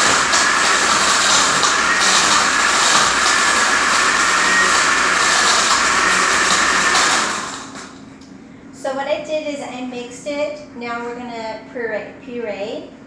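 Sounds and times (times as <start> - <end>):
blender running: 0.0 - 8.1.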